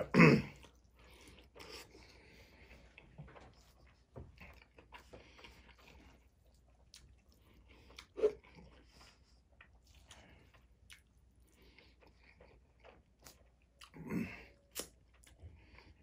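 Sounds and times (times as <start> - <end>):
person chewing food: 0.0 - 16.0
wet mouth smacks: 14.7 - 15.0.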